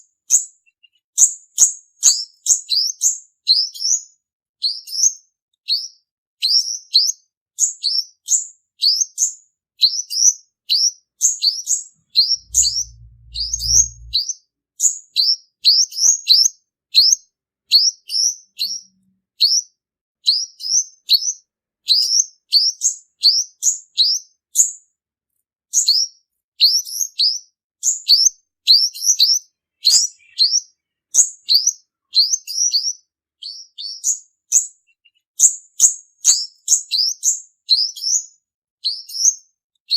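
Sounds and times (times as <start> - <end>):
sunbird chirping: 12.1 - 14.2, 28.9 - 32.8.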